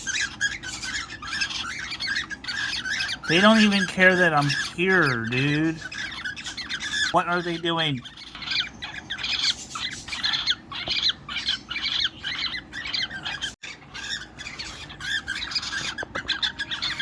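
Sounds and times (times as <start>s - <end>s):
cockatiels squawking chirps: 0.0s - 17.0s.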